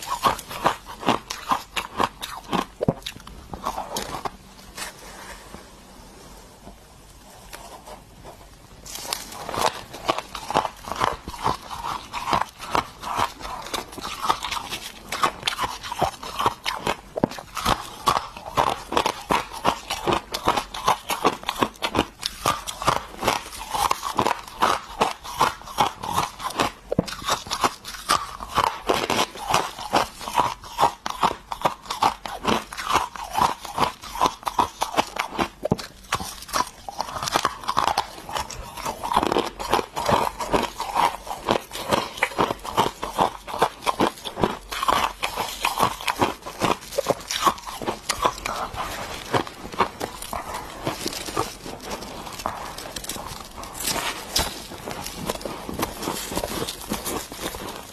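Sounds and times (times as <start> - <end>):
person crunching ice: 0.0 - 5.4, 8.8 - 57.9.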